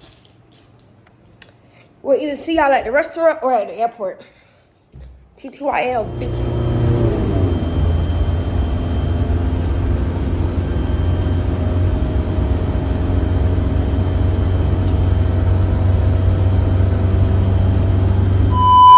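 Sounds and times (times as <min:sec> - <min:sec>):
faint steady tones: 0:05.9 - 0:18.9
vehicle engine rumbling: 0:05.9 - 0:18.9.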